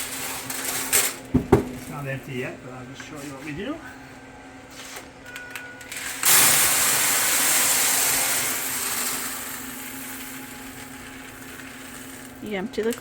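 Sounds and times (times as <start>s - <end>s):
steady low hum: 0.2s - 5.3s
corn kernels pouring into hopper: 5.9s - 12.4s.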